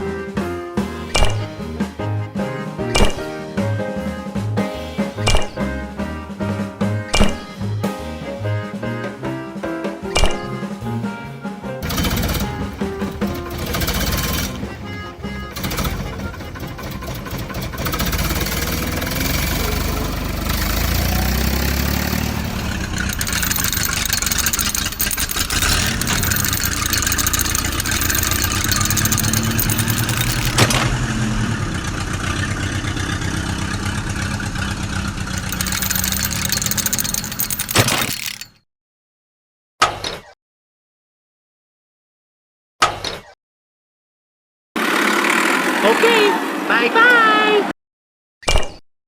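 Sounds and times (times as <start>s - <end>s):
small engine running: 11.8s - 38.5s, 44.8s - 45.8s
sharp clicks: 22.2s - 30.7s, 35.4s - 38.5s.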